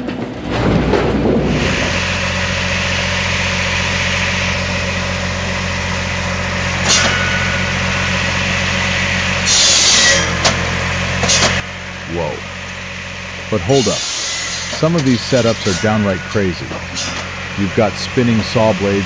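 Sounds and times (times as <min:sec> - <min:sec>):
engine running steadily: 0:00.0 - 0:09.1, 0:16.6 - 0:19.0
hissing burst: 0:00.0 - 0:09.7, 0:16.6 - 0:19.0.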